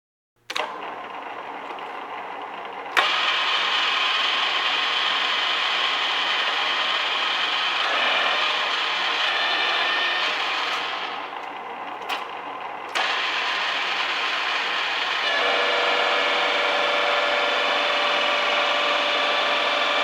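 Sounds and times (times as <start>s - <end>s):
milling machine whirring: 0.5s - 20.0s
sharp click: 2.9s - 3.6s.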